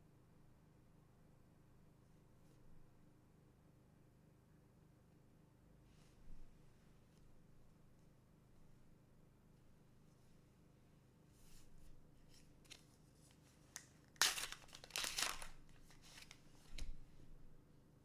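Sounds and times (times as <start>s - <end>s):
plastic wrapper tearing and crinkling: 13.8s - 16.9s.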